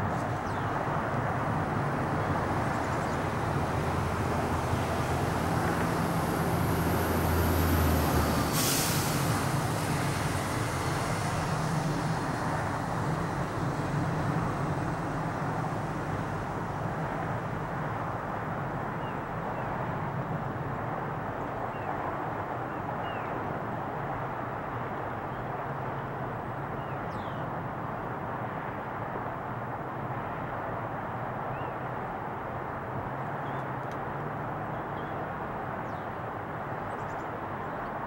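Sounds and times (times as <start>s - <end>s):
short hiss: 8.5s - 9.3s.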